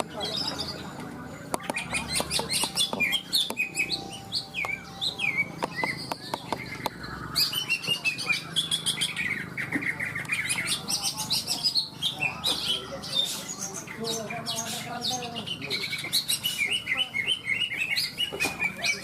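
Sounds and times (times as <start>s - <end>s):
birds chirping and trilling: 0.0s - 19.0s
sharp bird clicks: 1.5s - 7.0s, 8.7s - 10.8s.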